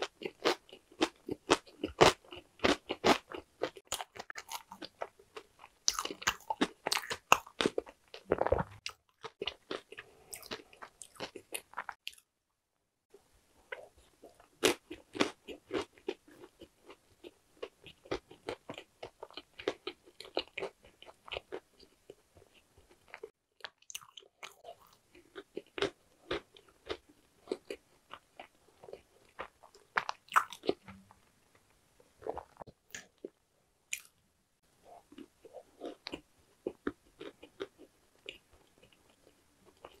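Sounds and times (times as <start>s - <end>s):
crunchy chewing: 0.0s - 12.2s, 13.7s - 31.6s.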